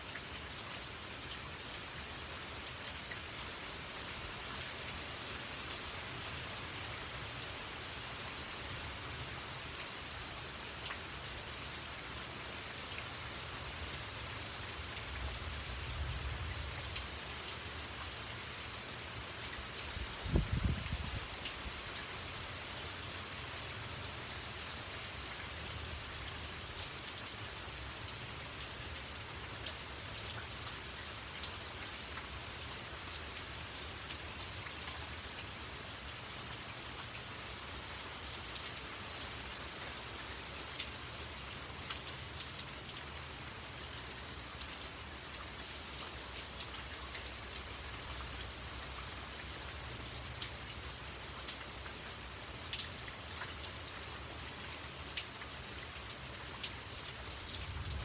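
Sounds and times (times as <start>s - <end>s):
rain on puddles and foliage: 0.0s - 58.0s.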